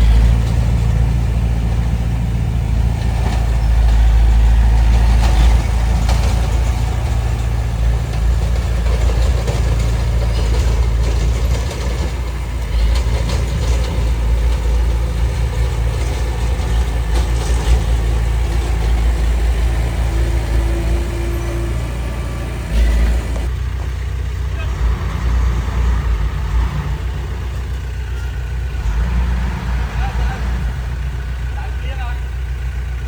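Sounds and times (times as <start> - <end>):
diesel engine rumbling: 0.0 - 33.0
knocks and clatter: 0.1 - 24.0.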